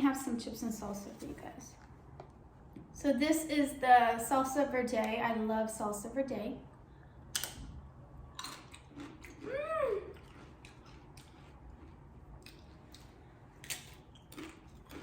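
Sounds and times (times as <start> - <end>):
chips crunching: 8.4 - 9.5, 10.1 - 15.0
person humming mmm: 9.4 - 10.2.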